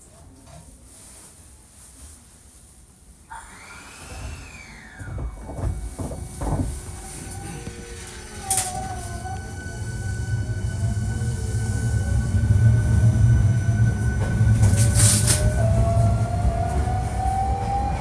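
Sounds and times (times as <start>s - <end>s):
train inverter whine: 3.9s - 18.0s
traction motor and wheel rumble: 4.1s - 18.0s.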